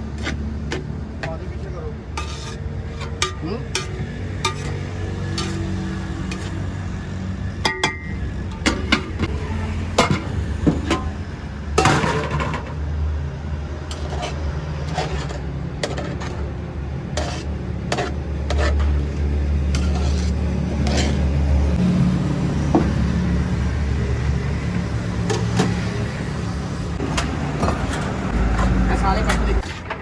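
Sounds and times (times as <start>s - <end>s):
utensils and dishes clattering: 2.2s - 6.8s, 7.7s - 12.7s, 17.2s - 21.8s.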